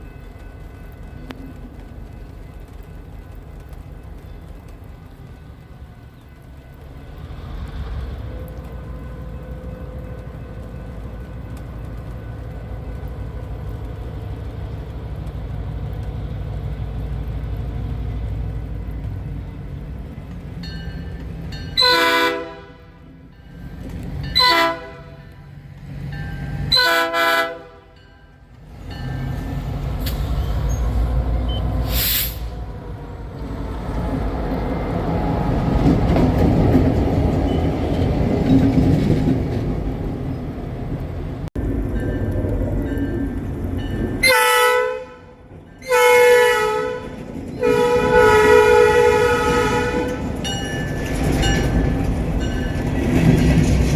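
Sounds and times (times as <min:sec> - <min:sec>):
moving train rumble: 0:00.0 - 0:53.9
train horn blasts: 0:21.8 - 0:23.2, 0:24.3 - 0:25.5, 0:26.7 - 0:28.0, 0:44.2 - 0:50.4.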